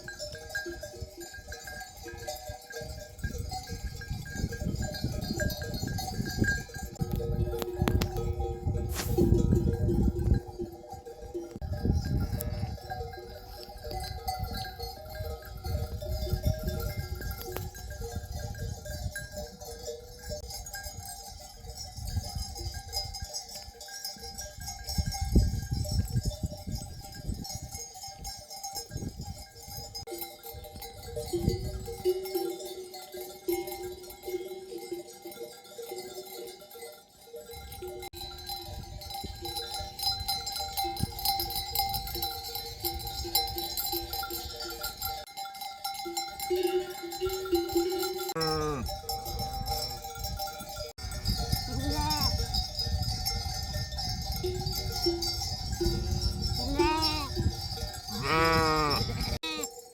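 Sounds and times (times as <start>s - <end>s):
sheep bells ringing: 0.0s - 59.9s
sheep and lambs bleating: 48.4s - 48.9s, 51.7s - 52.4s, 56.6s - 57.4s, 58.1s - 59.7s.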